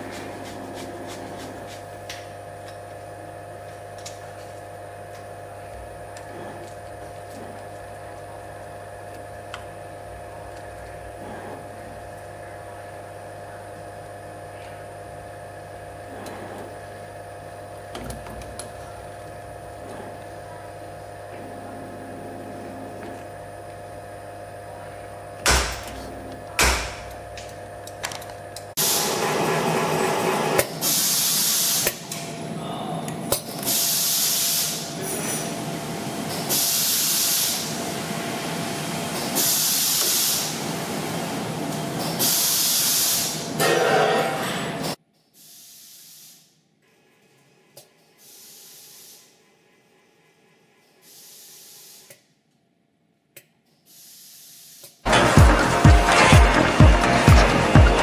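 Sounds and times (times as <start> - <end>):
electric machine hum: 0.0 - 30.8, 55.1 - 58.0.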